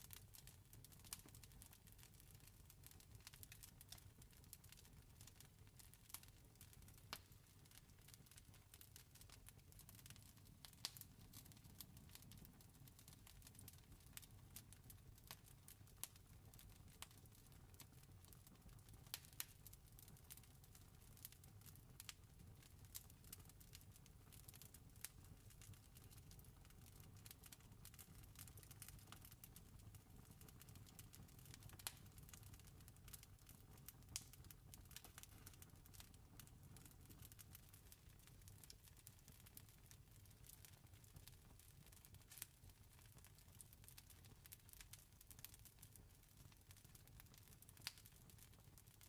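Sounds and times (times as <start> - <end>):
wood fire crackling: 0.0 - 49.0
campfire crackling: 8.0 - 14.2, 24.5 - 33.2, 33.8 - 36.2, 47.3 - 48.1.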